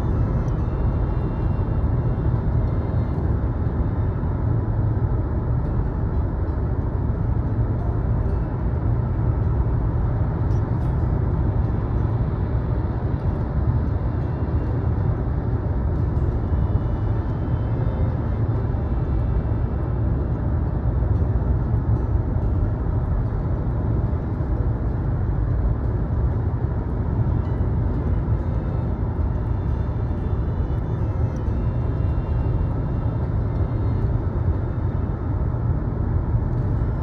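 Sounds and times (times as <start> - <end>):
car interior road and engine rumble: 0.0 - 37.0.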